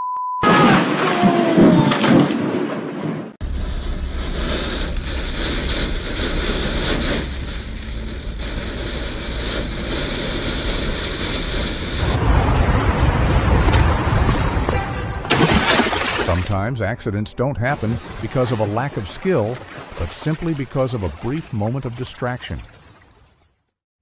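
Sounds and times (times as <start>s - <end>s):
rough noise: 2.2s - 14.6s.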